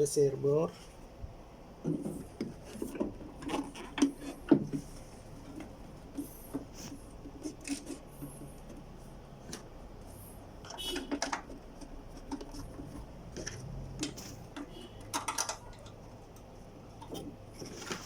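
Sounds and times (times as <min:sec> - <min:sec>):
clicks and clatter of tools: 0:10.7 - 0:18.0.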